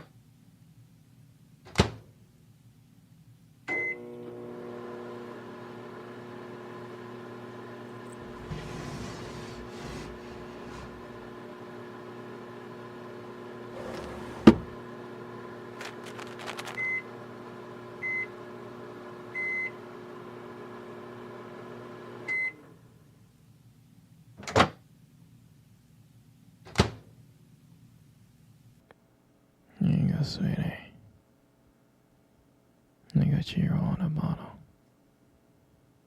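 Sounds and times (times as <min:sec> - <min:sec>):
microwave beeps: 0:03.7 - 0:04.1, 0:16.7 - 0:17.1, 0:18.0 - 0:18.4, 0:19.3 - 0:19.8, 0:22.3 - 0:22.6
microwave oven humming: 0:03.7 - 0:23.2.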